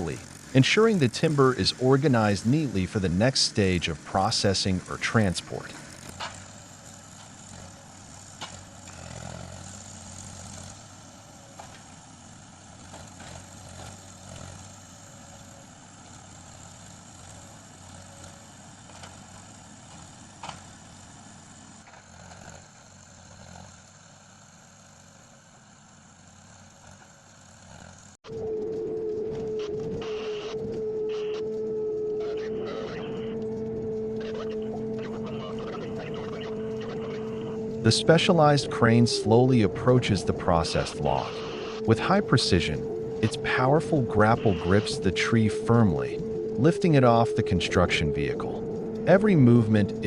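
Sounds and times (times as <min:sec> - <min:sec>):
heavy machine engine running: 0:00.0 - 0:50.0.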